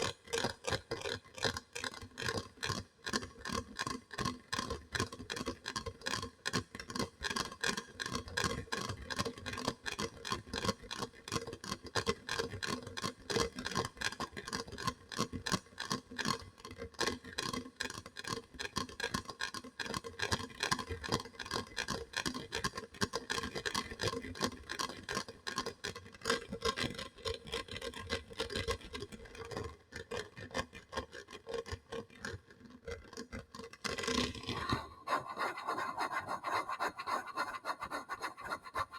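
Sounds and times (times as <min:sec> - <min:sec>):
rapid tapping on hard object: 0:34.4 - 0:38.9.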